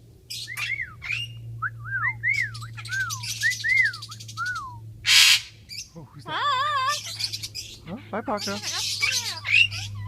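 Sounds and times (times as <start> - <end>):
steady low hum: 0.0 - 10.0
birds whistling: 0.3 - 10.0
birds chattering harshly: 2.6 - 10.0.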